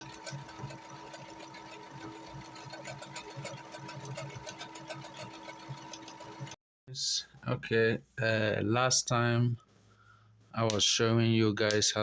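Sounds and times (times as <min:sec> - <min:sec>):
sewing machine stitching: 0:00.0 - 0:06.6.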